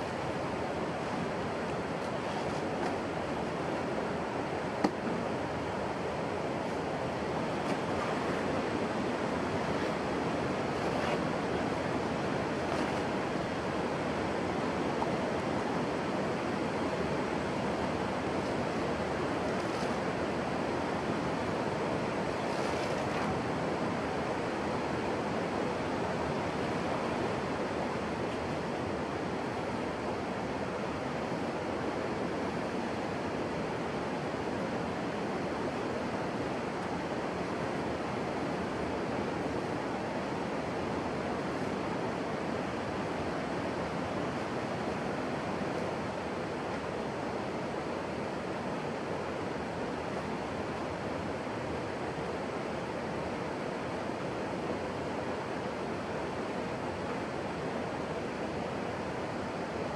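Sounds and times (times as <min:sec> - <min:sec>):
water flowing: 0:00.0 - 0:30.5.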